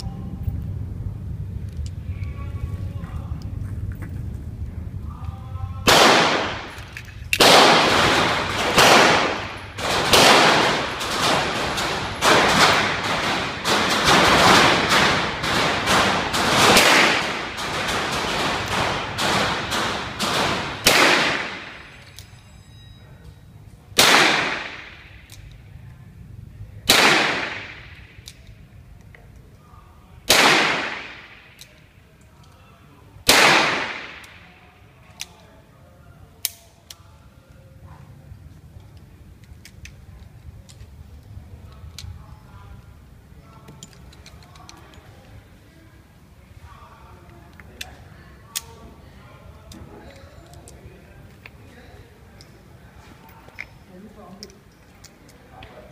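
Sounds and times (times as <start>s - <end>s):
revolver gunshots: 5.9s - 22.0s, 24.0s - 25.3s, 26.9s - 28.2s, 30.3s - 31.6s, 33.2s - 34.5s.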